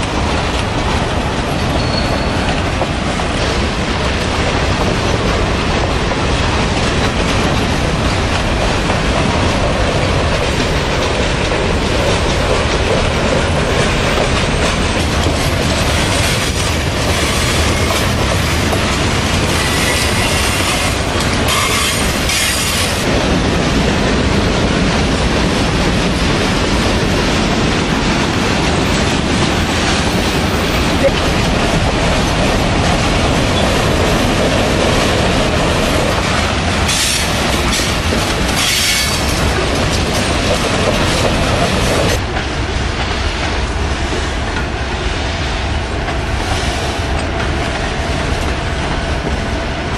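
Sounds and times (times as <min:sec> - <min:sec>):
train wheels rumbling on rails: 0:00.0 - 0:49.9
high-pitched wheel squeals: 0:01.6 - 0:02.4.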